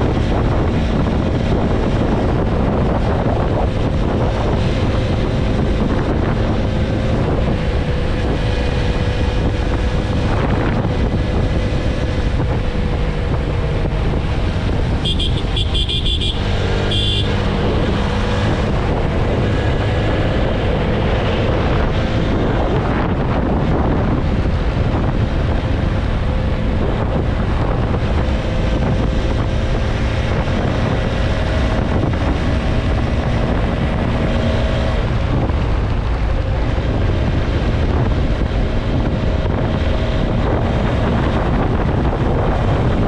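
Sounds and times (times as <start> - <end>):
motorcycle engine droning: 0.0 - 43.0
wind noise on microphone: 0.0 - 43.0
vehicle horn beeping: 15.0 - 17.4.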